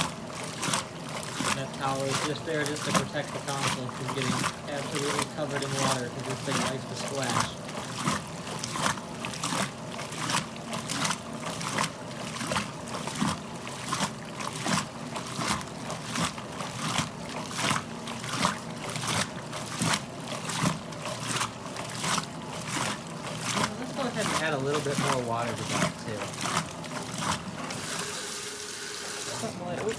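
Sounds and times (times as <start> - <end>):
washing machine agitator churning: 0.0 - 29.9
water sloshing and splashing: 0.0 - 29.9.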